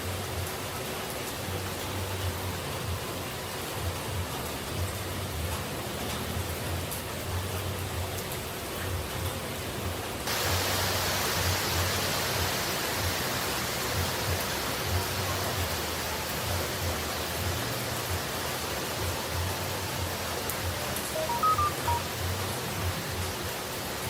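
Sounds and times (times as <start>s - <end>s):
waterfall rushing: 10.3s - 23.0s.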